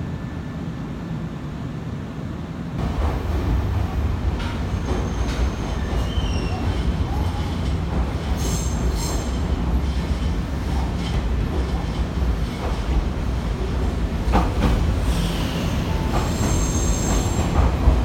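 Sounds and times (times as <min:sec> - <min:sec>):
train running gear rumble: 0:01.4 - 0:18.0
wheels squealing on rail: 0:04.4 - 0:10.1, 0:15.0 - 0:17.7.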